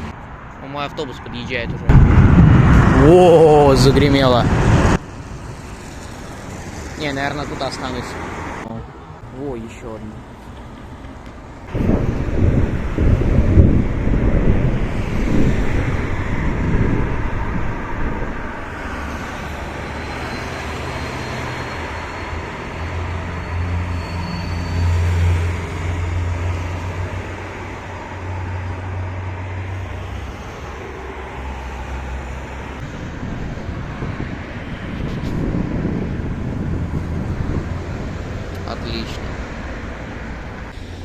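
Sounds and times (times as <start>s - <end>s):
road traffic: 0.0s - 41.0s
low rumble: 1.8s - 5.5s, 11.7s - 19.6s.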